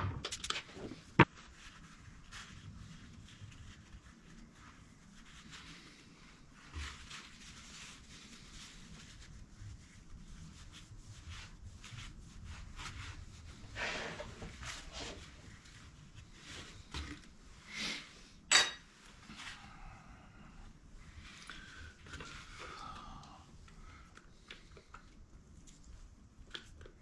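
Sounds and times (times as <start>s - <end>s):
sharp metallic clink: 18.5s - 18.8s
metal tools handled on workbench: 18.5s - 18.9s.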